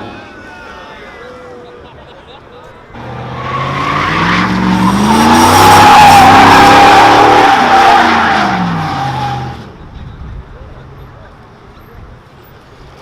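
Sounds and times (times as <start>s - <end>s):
tires screeching: 2.9s - 11.2s
car engine revving: 3.0s - 9.6s.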